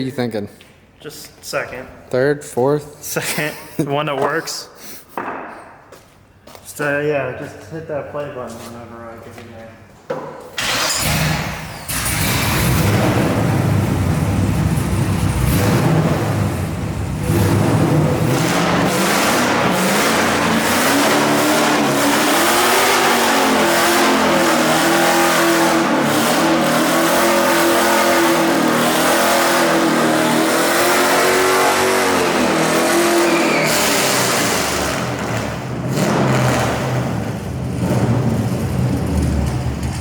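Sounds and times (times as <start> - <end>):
car engine revving hard: 10.6 - 40.0.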